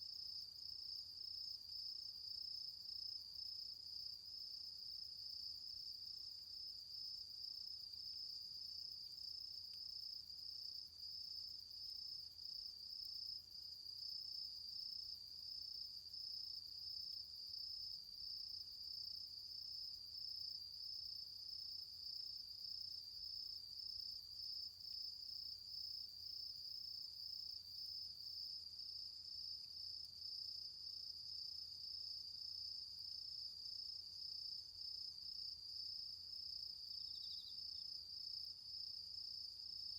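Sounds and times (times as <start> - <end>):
insect high-pitched trill: 37.0 - 37.6.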